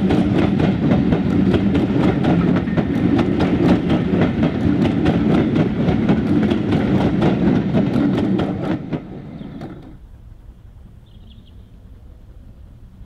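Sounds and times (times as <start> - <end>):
train wheels clicking over rail joints: 0.0 - 10.0
heavy train rumble: 0.0 - 11.0, 11.6 - 13.0.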